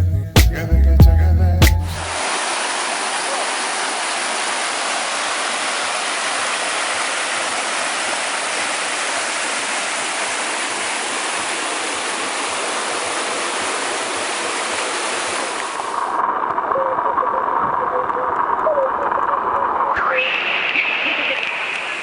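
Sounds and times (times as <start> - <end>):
waterfall rushing: 2.0 - 17.7, 18.4 - 22.0.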